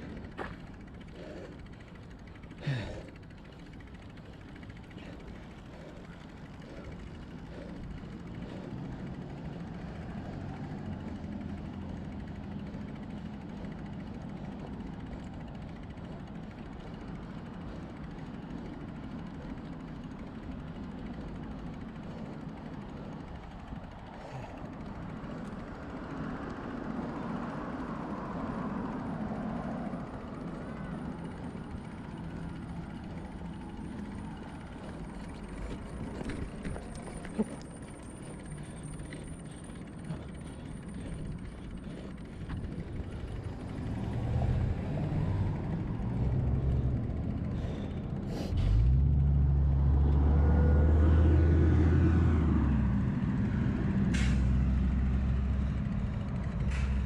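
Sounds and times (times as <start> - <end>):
heavy vehicle engine: 0.0 - 57.0
road noise: 0.0 - 57.0.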